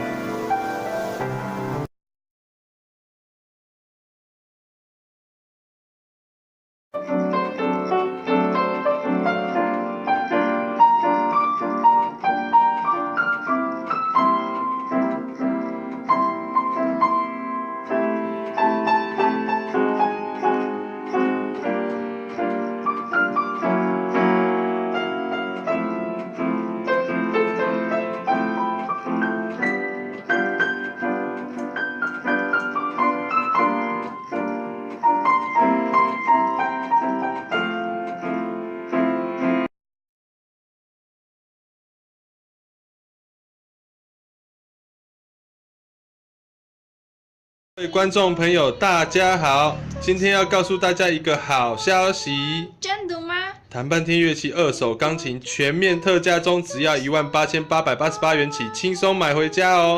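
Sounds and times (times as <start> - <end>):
piano piece: 0.0 - 1.9, 7.0 - 39.7, 47.8 - 52.8, 53.6 - 59.9.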